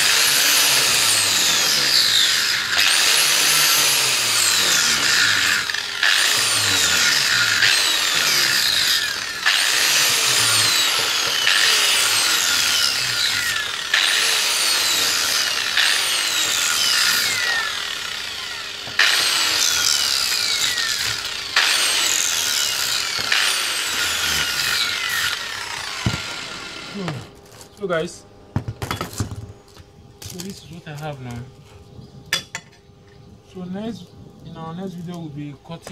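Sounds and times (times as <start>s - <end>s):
power tool grinding metal: 0.0s - 27.4s.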